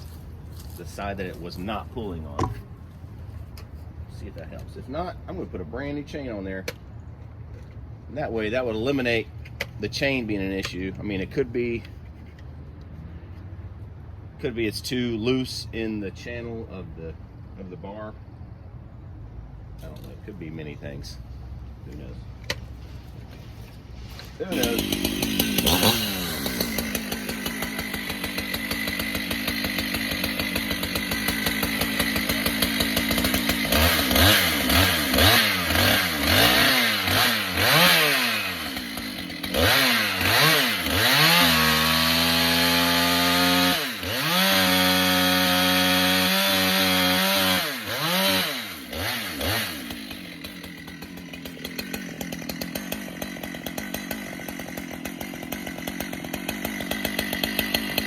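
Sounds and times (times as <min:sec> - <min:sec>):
chainsaw idling and revving: 0:00.0 - 0:02.7, 0:08.1 - 0:11.8, 0:23.0 - 0:58.0.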